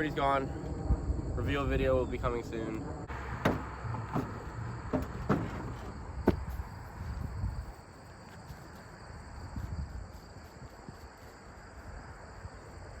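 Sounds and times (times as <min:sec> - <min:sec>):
low rumble: 0:00.0 - 0:04.8
insects chirring: 0:00.0 - 0:13.0.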